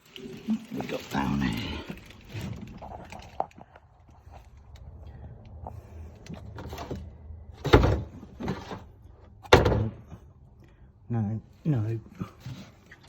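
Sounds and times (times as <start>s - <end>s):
loud ringing thunks: 9.4s - 10.2s.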